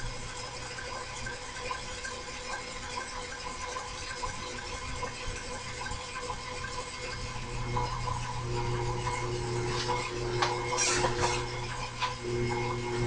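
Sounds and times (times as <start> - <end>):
machine motor hum: 0.0 - 13.0.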